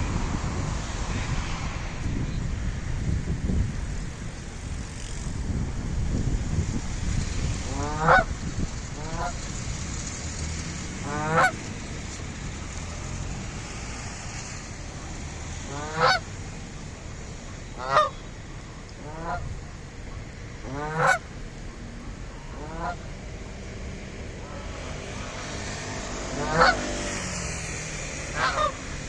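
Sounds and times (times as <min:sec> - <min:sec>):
geese honking: 0:07.7 - 0:08.3, 0:09.0 - 0:09.5, 0:11.0 - 0:11.7, 0:15.6 - 0:16.2, 0:17.5 - 0:19.6, 0:20.6 - 0:21.3, 0:22.4 - 0:23.0, 0:26.3 - 0:26.9, 0:28.3 - 0:29.0.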